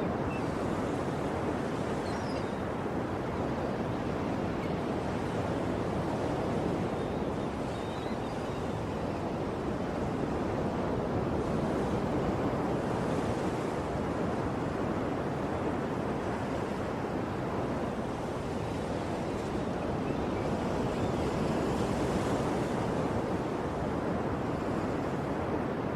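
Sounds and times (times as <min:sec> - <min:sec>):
sea waves surging on shore: 0:00.0 - 0:25.9.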